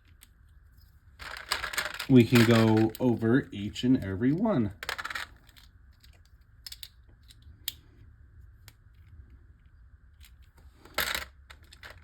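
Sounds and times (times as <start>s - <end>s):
plastic parts clattering: 1.2s - 3.2s, 4.8s - 7.4s, 10.3s - 12.0s
small plastic clicks: 5.0s - 7.8s.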